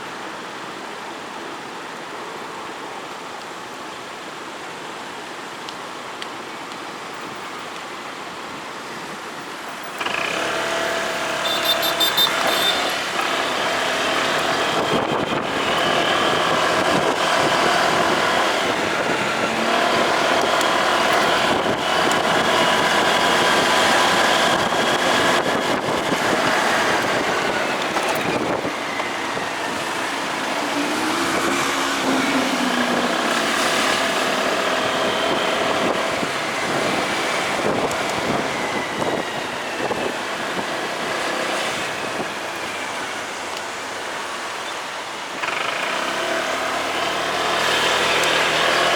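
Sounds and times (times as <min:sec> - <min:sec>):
road noise: 0:00.0 - 0:48.9
motorcycle engine: 0:09.9 - 0:38.9, 0:45.4 - 0:48.9.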